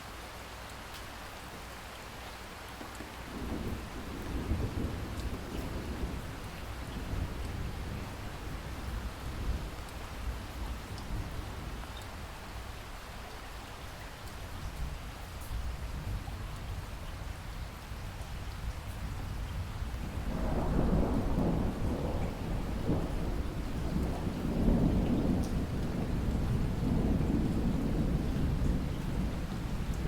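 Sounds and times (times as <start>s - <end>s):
steady rain falling: 0.0s - 30.0s
low rolling thunder rumble: 3.3s - 11.9s, 14.7s - 30.0s.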